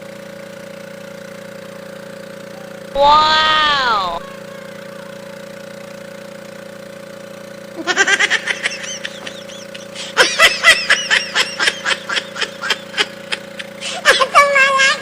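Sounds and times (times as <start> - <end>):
engine hum: 0.0 - 15.0
person giggling: 3.0 - 5.3, 7.8 - 14.3.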